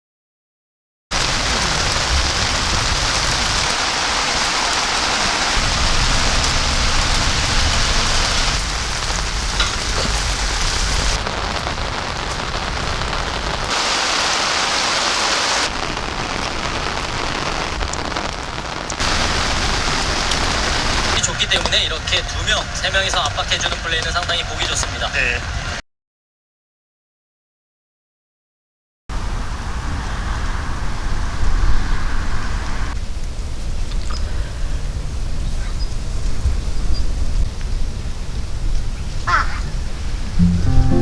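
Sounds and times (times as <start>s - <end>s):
heavy rain pouring: 1.1s - 25.8s.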